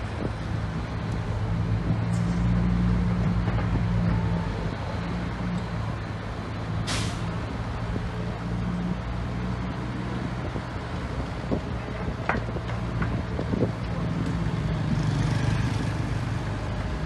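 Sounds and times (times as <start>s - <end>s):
diesel engine running: 0.0s - 17.0s
air brake hiss: 6.8s - 7.4s.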